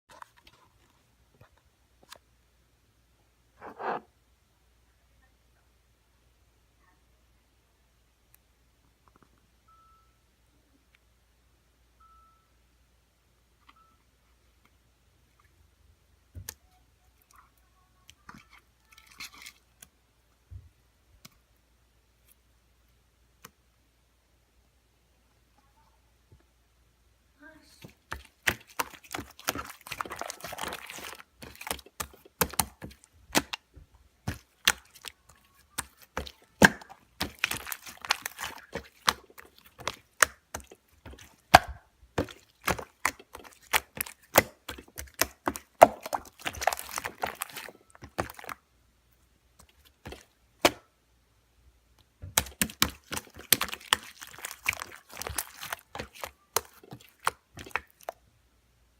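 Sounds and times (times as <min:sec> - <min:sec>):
slime crackling: 0:27.7 - 0:33.6, 0:34.2 - 0:48.6, 0:49.6 - 0:50.8, 0:52.3 - 0:58.2.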